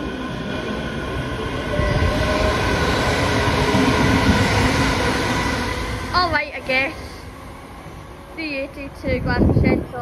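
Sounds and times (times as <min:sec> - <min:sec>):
train whining tones: 0:00.0 - 0:08.6
train running past: 0:00.0 - 0:10.0.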